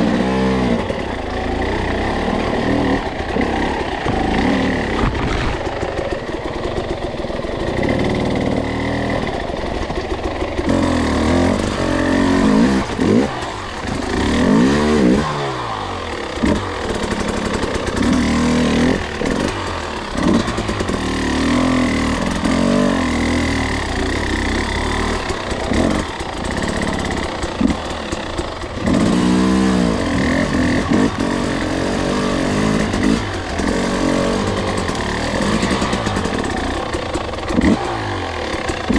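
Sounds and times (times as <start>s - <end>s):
two-stroke dirt bike engine revving: 0.0s - 38.9s
knocks and clatter: 3.3s - 7.1s.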